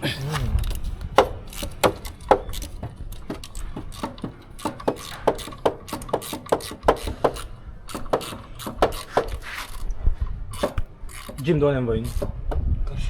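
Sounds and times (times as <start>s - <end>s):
hand tools knocking on metal: 0.6s - 9.9s, 10.5s - 13.0s.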